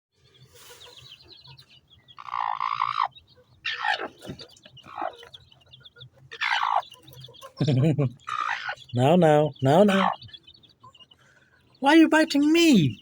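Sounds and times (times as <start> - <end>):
faint chick peeps: 0.2 - 13.0
hen calling loudly: 2.2 - 4.3, 6.3 - 6.9, 8.2 - 10.3, 11.8 - 13.0.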